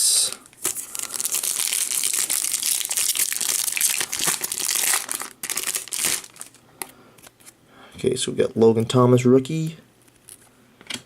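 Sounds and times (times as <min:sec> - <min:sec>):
card pack wrapper crinkling: 0:00.4 - 0:06.6.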